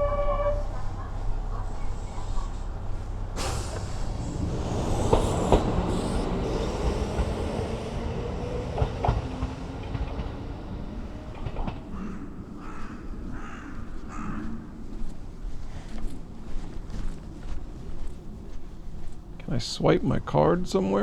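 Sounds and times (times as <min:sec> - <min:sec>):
train rumbling on rails: 0:00.0 - 0:21.0
wheel clacks over rail joints: 0:00.7 - 0:12.4.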